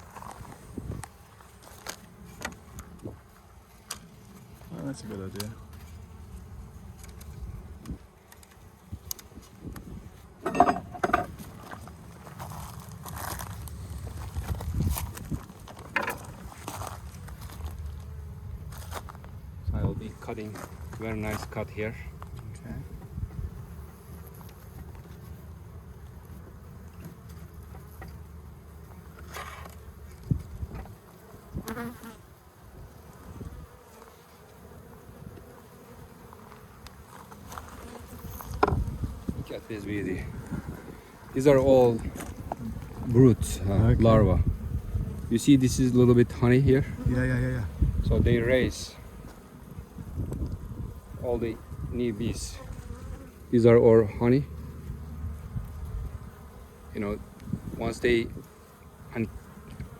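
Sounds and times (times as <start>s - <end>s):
honeybees buzzing: 0.0s - 59.9s
knocks on beehive: 38.6s - 38.9s.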